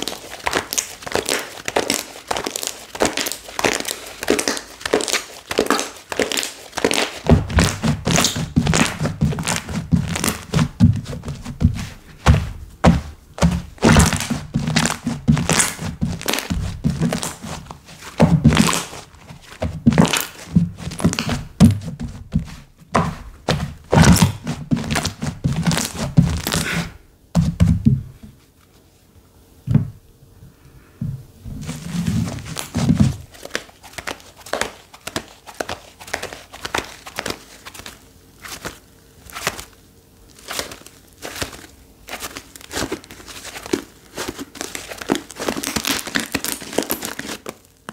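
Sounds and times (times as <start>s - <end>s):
slime squeezed with sticky pops: 0.0s - 19.0s, 42.2s - 47.6s.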